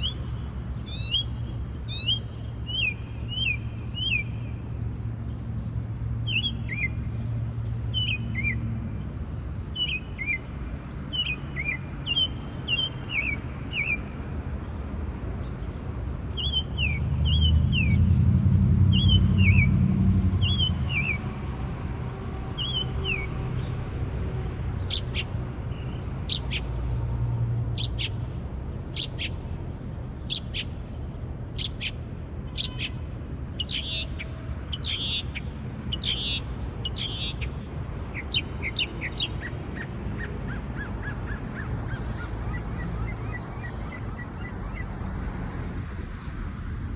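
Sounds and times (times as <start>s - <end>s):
bird chirping: 0.0s - 4.6s, 6.2s - 7.2s, 7.8s - 8.7s, 9.3s - 14.7s, 16.3s - 18.1s, 18.8s - 19.8s, 20.4s - 21.3s, 22.5s - 23.8s, 24.8s - 45.0s.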